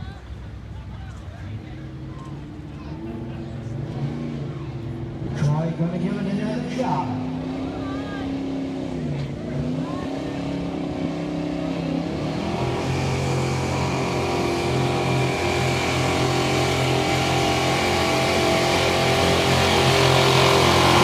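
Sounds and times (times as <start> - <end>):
truck engine revving under load: 1.9 - 21.0.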